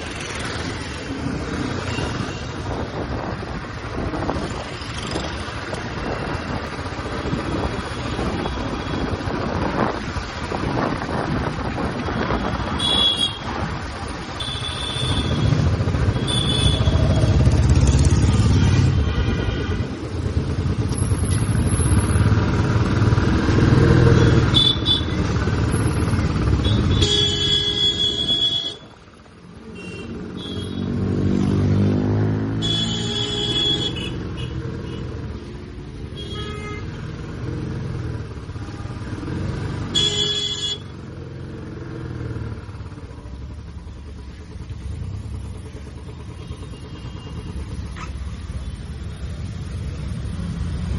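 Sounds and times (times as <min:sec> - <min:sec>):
wind noise: 0:01.3 - 0:13.9
horn honks: 0:26.6 - 0:28.8, 0:32.6 - 0:35.0, 0:36.2 - 0:37.0, 0:39.8 - 0:40.9.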